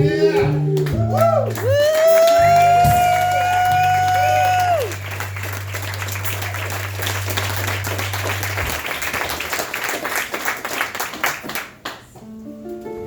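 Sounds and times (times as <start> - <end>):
audience applauding: 0.8 - 12.2
low steady ringing note: 3.9 - 9.3.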